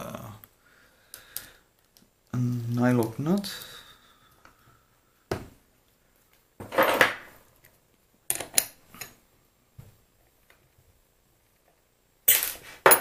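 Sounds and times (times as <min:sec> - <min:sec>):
metal tools clinking on a bench: 0:12.3 - 0:13.0.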